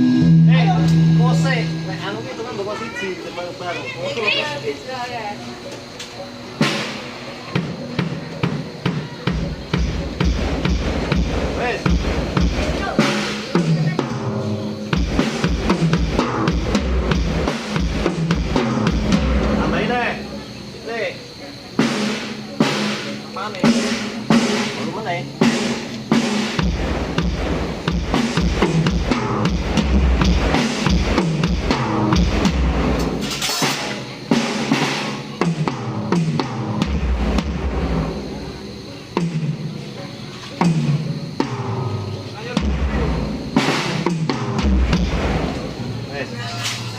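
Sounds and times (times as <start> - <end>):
bass drum hits: 0.0 - 2.3, 42.6 - 45.6
cymbal crash: 0.0 - 2.8, 6.6 - 20.8, 21.8 - 39.7, 40.6 - 46.2
drum kit playing a beat: 0.0 - 3.0, 6.2 - 46.4
held pitched tone: 0.0 - 4.9.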